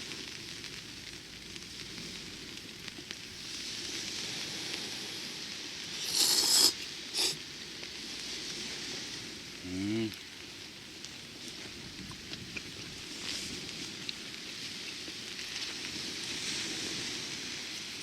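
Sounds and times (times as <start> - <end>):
crackling sizzling hiss: 0.0 - 18.0
person slurping noodles: 6.0 - 7.4.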